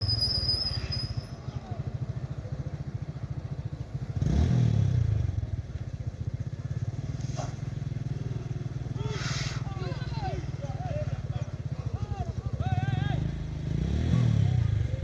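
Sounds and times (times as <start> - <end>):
vehicle engine idling and revving: 0.0 - 15.0.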